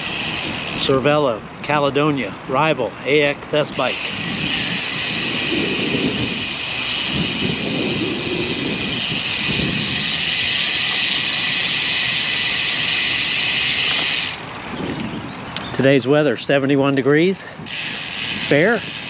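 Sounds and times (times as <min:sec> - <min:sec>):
bicycle road noise: 0:00.0 - 0:19.0
wind rushing: 0:04.0 - 0:10.6.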